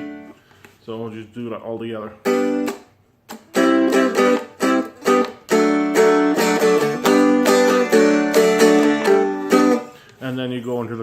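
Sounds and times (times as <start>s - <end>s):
dulcimer strummed: 3.4s - 9.9s.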